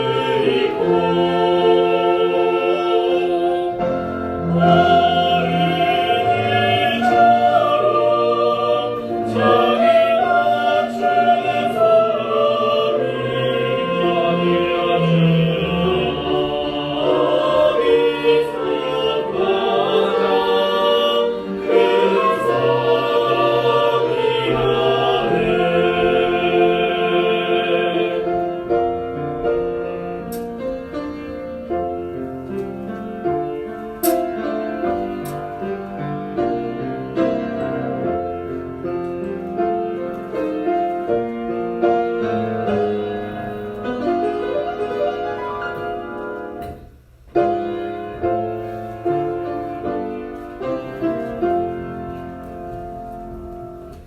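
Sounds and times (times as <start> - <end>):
choir singing worship song: 0.0 - 30.6
orchestral accompaniment: 0.0 - 54.0.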